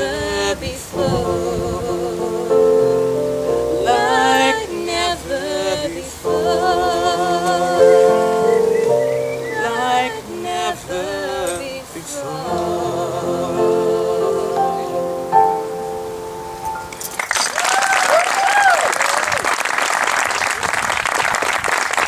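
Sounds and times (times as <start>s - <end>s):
woman singing with vibrato: 0.0s - 8.7s, 9.3s - 15.3s
held accompaniment chords: 0.0s - 17.2s.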